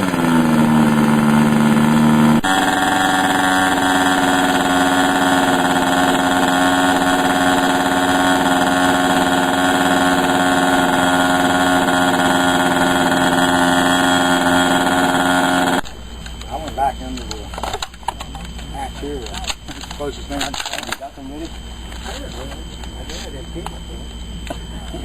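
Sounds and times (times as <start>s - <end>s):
model airplane engine running: 0.0s - 15.8s.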